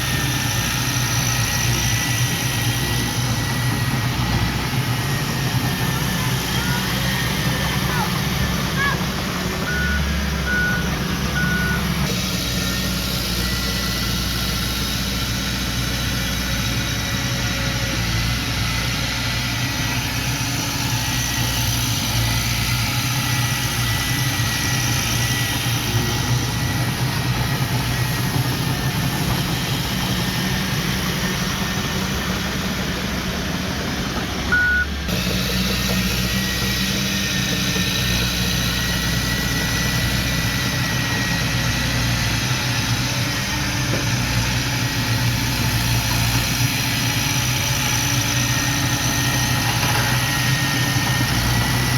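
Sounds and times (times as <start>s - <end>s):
diesel engine running: 0.0s - 51.9s
reversing alarm beeps: 9.6s - 12.0s, 34.5s - 35.0s.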